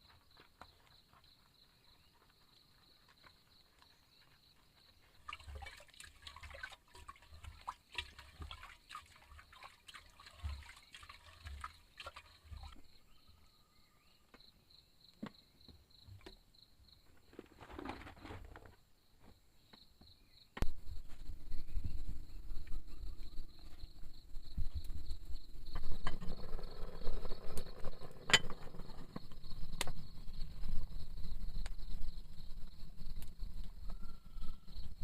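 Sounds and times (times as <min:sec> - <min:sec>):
water dripping and trickling: 0:05.1 - 0:13.0
high insect trill: 0:21.0 - 0:35.0.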